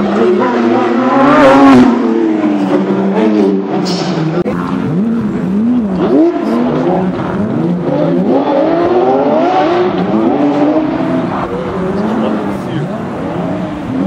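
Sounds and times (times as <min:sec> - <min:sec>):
race car engine at high revs: 0:00.0 - 0:14.0.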